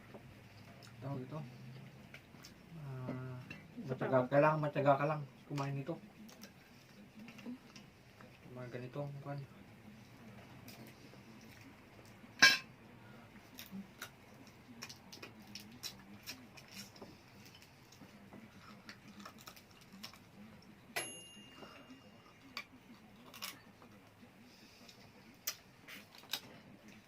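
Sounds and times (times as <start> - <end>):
tableware clicking and clinking: 12.4 - 12.7, 21.0 - 22.2
tableware struck and ringing: 21.0 - 22.1.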